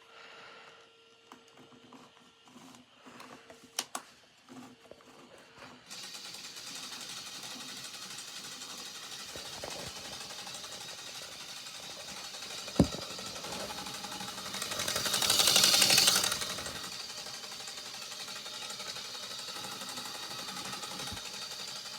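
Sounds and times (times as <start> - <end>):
toy engine buzzing clatter: 5.8 - 21.9.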